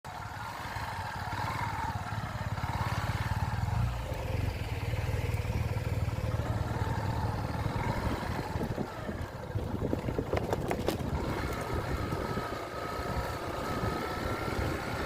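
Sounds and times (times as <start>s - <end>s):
motorcycle engine running: 0.1s - 15.0s.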